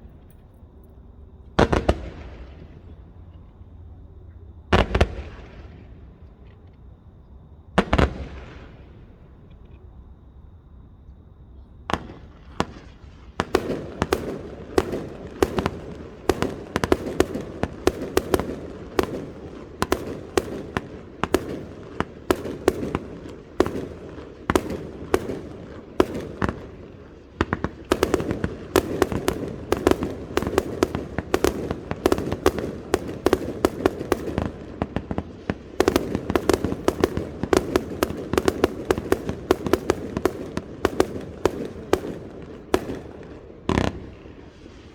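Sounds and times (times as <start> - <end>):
fireworks bangs: 1.6 - 3.2, 4.7 - 6.1, 7.8 - 9.2, 11.9 - 44.9
fireworks crackle: 12.0 - 44.9.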